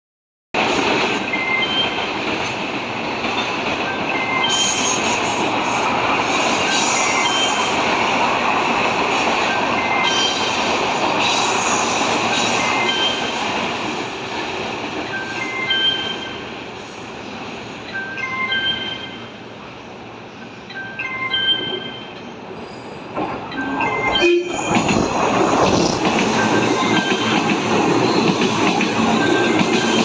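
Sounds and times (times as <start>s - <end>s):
train wheels rumbling on rail: 0.6s - 17.9s, 21.5s - 30.0s
wheels squealing: 22.6s - 30.0s.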